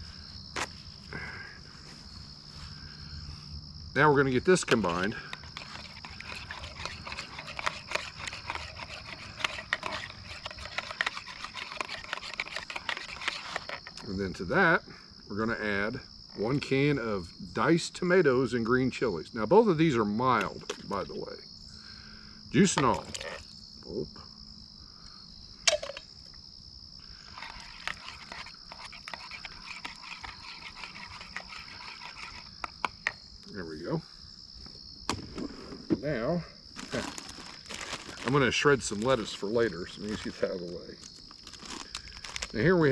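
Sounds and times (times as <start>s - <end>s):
high insect drone: 0.0s - 42.9s
utensil scraping in a bowl: 4.6s - 14.1s, 22.8s - 23.4s, 27.3s - 32.9s.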